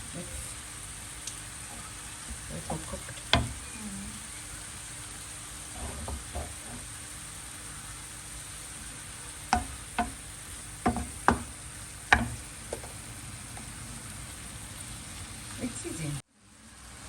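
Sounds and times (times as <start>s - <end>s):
food sizzling in a pot: 0.0s - 17.0s
spoon knocking against pot: 2.6s - 3.6s, 9.5s - 10.2s, 10.8s - 13.0s.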